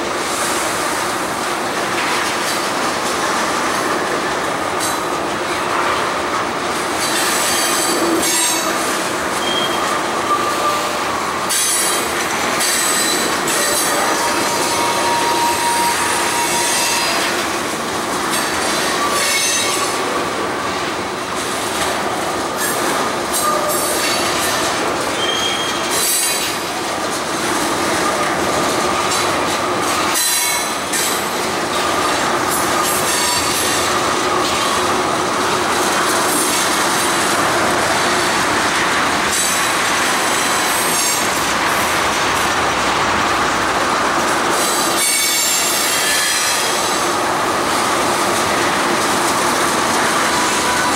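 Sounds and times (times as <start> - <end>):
freight train cars rolling: 0.0 - 50.9
high wheel squeal: 9.4 - 17.4, 18.4 - 20.0, 22.6 - 26.6, 44.6 - 46.9.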